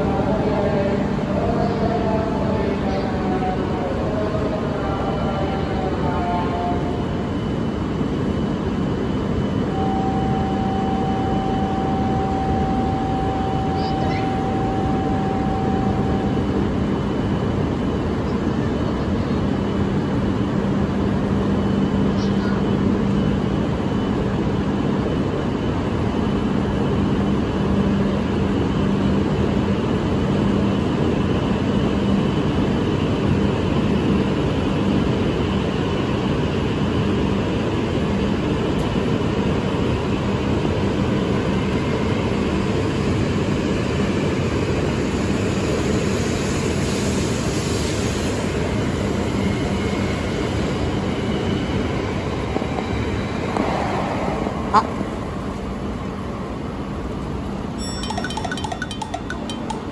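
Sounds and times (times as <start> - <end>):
high train whine: 0.0 - 59.9
train rumble and hum: 0.0 - 59.9.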